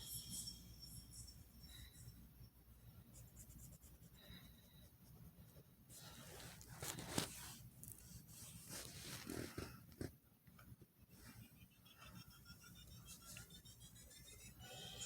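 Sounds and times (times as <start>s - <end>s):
drawing tool scratching on paper: 12.0s - 15.0s.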